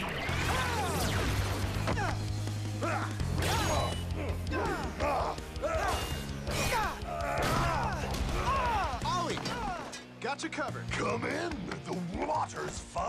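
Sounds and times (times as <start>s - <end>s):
action music with stepping bass line: 0.0s - 13.0s.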